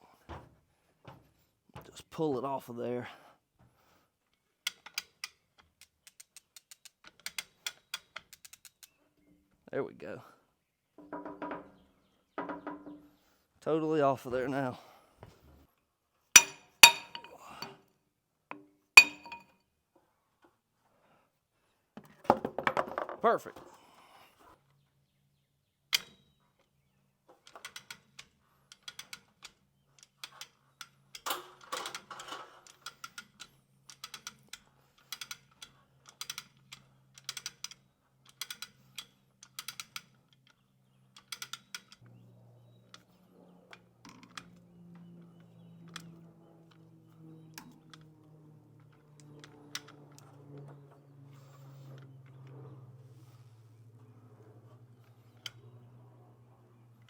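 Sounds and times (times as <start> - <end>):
chain hoist ratcheting clicks: 4.6 - 9.0, 27.4 - 42.1, 42.8 - 52.7.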